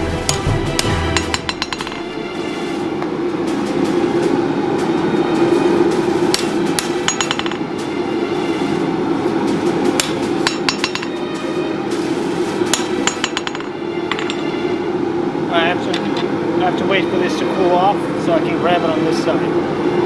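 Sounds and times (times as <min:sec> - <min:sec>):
steady drone: 0:00.0 - 0:20.0
hammer ringing on anvil: 0:00.3 - 0:02.2, 0:06.3 - 0:07.8, 0:10.0 - 0:11.2, 0:12.7 - 0:14.8.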